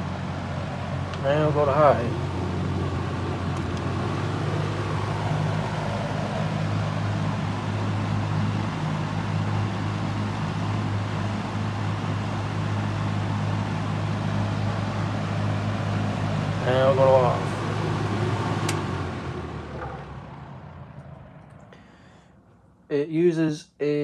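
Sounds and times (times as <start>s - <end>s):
air rushing from fan blades: 0.0s - 22.6s
box fan motor hum: 0.0s - 22.9s
motor rattle: 1.2s - 7.1s, 16.6s - 22.7s.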